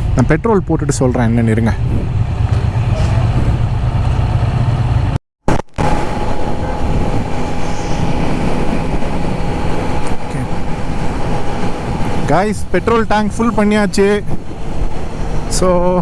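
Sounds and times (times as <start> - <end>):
road and wind noise: 0.0 - 16.0
steady high whine: 0.0 - 16.0
motorcycle engine running: 1.0 - 16.0.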